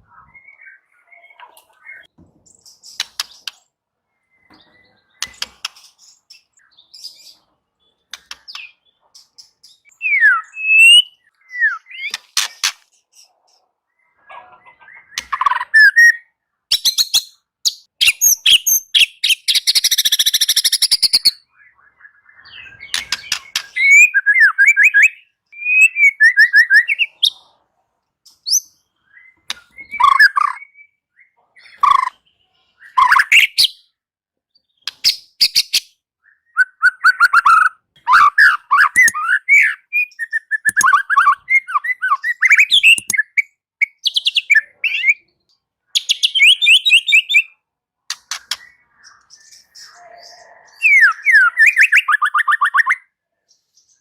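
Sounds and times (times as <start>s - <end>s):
bird singing varied phrases: 0.0s - 27.6s, 28.3s - 54.0s.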